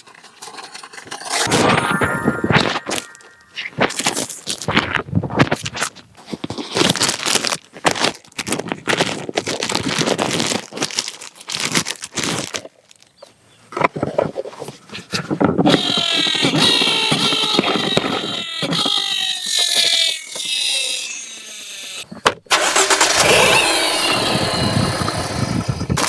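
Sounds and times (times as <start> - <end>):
packaging crinkling and tearing: 3.9 - 13.3.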